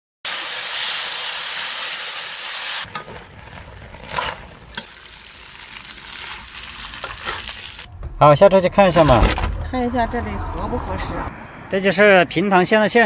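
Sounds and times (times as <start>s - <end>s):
food sizzling in a hot pan: 0.3s - 3.0s, 4.7s - 7.9s.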